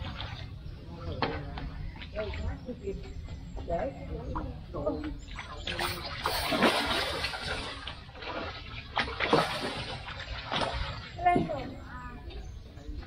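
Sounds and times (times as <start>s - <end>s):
fish thrashing and splashing: 5.2s - 11.6s.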